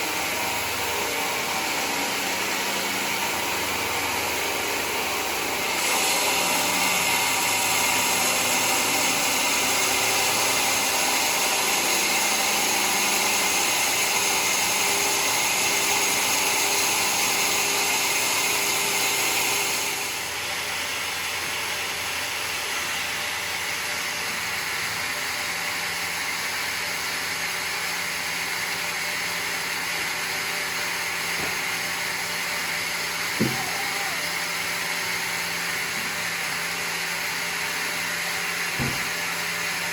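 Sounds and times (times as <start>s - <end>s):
sawmill saw cutting wood: 0.0s - 39.9s
sharp knock: 33.4s - 33.7s, 38.8s - 39.1s.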